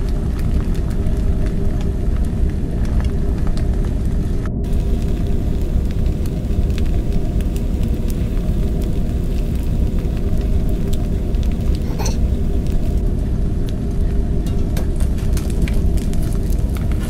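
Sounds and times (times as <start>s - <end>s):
steady low rumble: 0.0s - 17.0s
eggs sizzling in a skillet: 4.6s - 17.0s.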